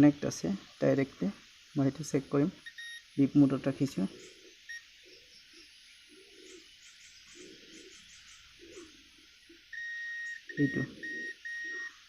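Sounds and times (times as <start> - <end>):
multimeter high beep: 2.6 - 3.0, 9.7 - 12.0.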